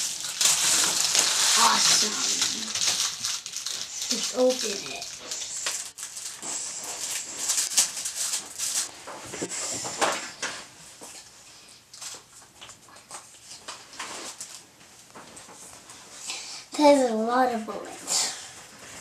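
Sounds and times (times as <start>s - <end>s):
packaging rustling and crinkling: 0.0s - 10.5s.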